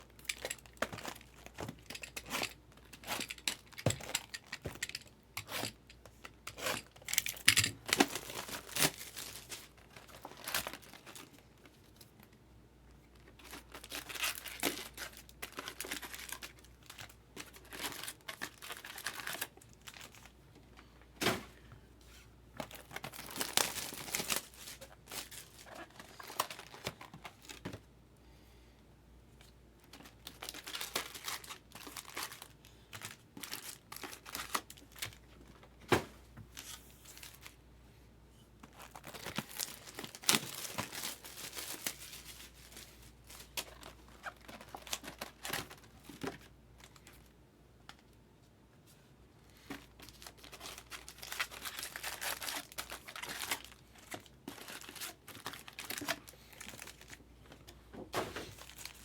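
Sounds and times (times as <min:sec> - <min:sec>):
packaging tearing and crinkling: 0:06.5 - 0:11.4, 0:13.3 - 0:20.3, 0:22.6 - 0:27.7, 0:30.0 - 0:35.2, 0:38.7 - 0:46.2, 0:49.8 - 0:57.2, 0:58.6 - 0:59.0.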